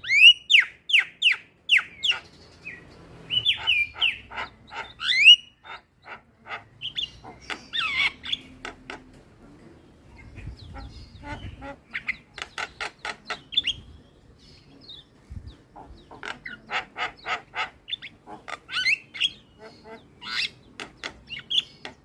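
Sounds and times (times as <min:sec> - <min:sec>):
bird calling: 0:00.0 - 0:09.2, 0:15.8 - 0:22.0.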